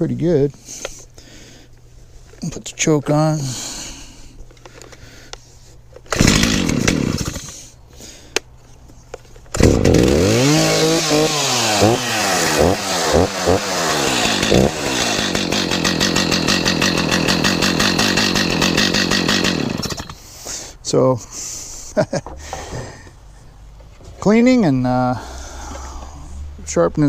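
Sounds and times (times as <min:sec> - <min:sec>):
chainsaw starting revving and idling: 0:06.1 - 0:07.7, 0:09.5 - 0:20.4.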